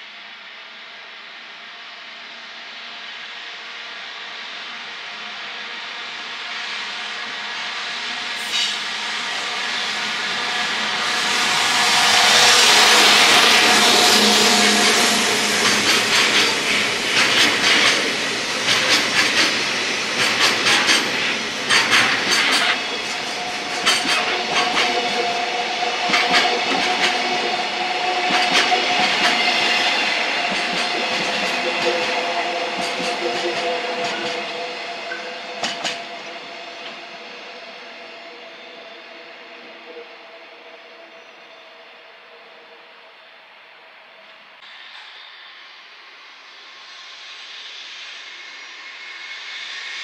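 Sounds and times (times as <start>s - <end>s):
steady train whine: 0.0s - 50.0s
train wheels clattering: 8.1s - 38.4s.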